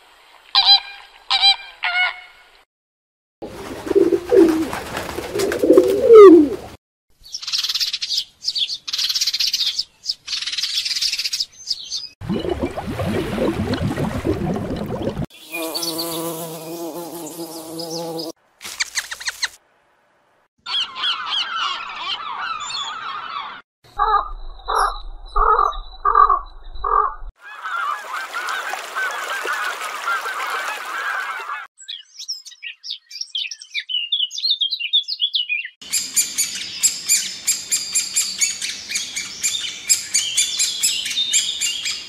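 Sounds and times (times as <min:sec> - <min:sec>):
birds calling: 0:20.6 - 0:42.0.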